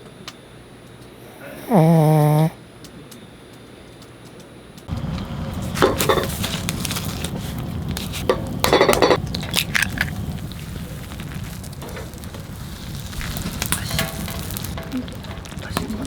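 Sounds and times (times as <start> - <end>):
steady low rumble: 4.9 - 16.0
dishes and glassware clinking: 8.7 - 9.2.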